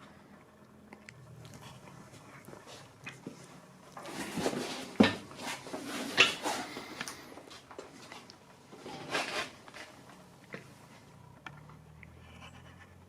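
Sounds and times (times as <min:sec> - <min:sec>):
knocks and clattering handling: 0:04.0 - 0:10.8.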